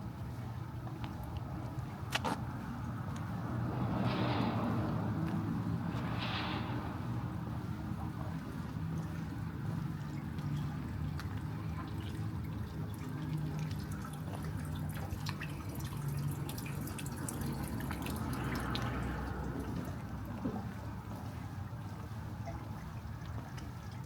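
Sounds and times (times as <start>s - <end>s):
steady low rumble: 0.0s - 24.0s
raindrops dripping and tapping: 12.8s - 20.7s.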